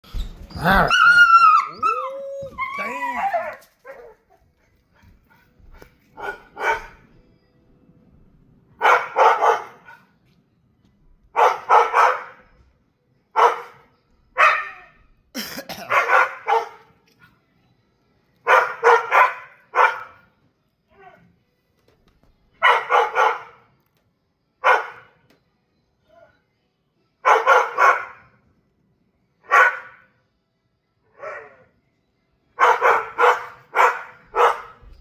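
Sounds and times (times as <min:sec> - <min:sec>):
dog barking: 0:00.6 - 0:02.0, 0:06.2 - 0:07.1, 0:08.8 - 0:10.1, 0:11.3 - 0:12.5, 0:13.4 - 0:15.0, 0:15.7 - 0:17.0, 0:18.4 - 0:20.2, 0:22.6 - 0:23.7, 0:24.6 - 0:25.2, 0:27.2 - 0:28.3, 0:29.4 - 0:30.1, 0:32.6 - 0:35.0.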